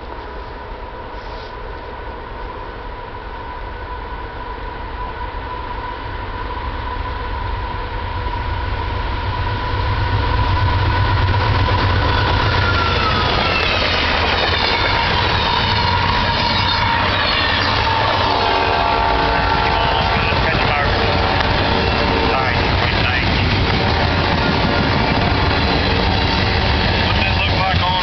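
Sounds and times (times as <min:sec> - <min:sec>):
train rumbling past: 0:00.0 - 0:28.0
steady high tones: 0:11.3 - 0:28.0.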